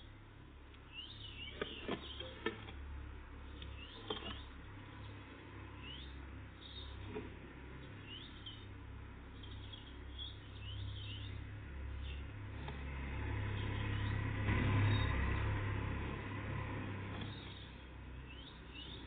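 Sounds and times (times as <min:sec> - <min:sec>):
birds chirping: 0:00.7 - 0:19.0.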